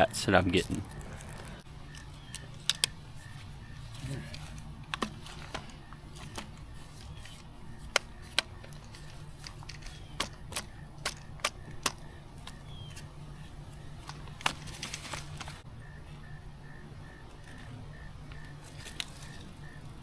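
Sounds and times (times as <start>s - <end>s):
steady low hum: 0.0s - 20.0s
clicks and taps handling bicycle wheel: 1.9s - 3.0s, 4.9s - 13.1s.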